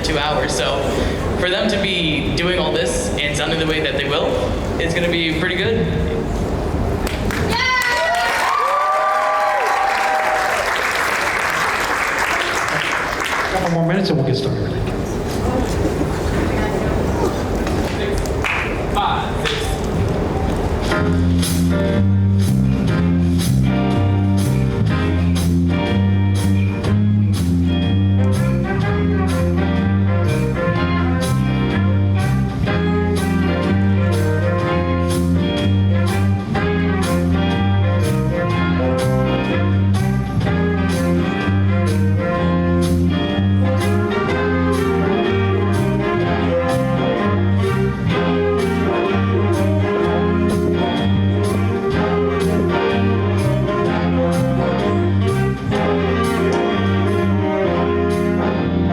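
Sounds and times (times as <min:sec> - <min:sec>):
jazz band with horns playing: 0:19.9 - 0:58.9.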